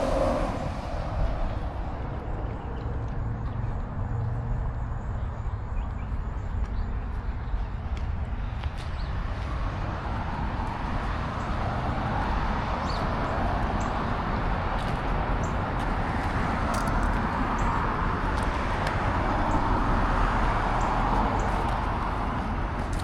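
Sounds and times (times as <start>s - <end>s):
road traffic hiss: 0.0s - 2.5s.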